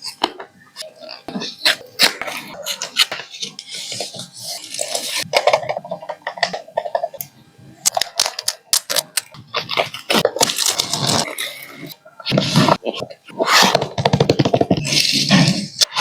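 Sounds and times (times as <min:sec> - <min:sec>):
packaging rustling: 0:08.0 - 0:13.0.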